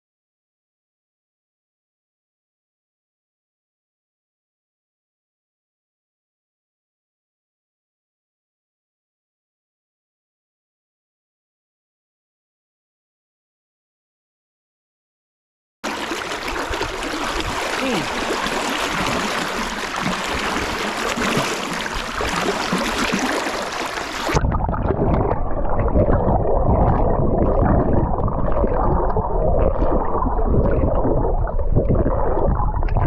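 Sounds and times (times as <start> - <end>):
water rushing and splashing: 15.8 - 30.7
muffled underwater sound: 15.8 - 33.0.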